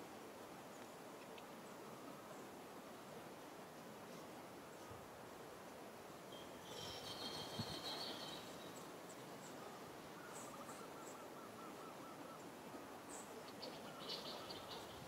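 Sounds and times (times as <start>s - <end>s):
birds calling: 6.4s - 9.6s.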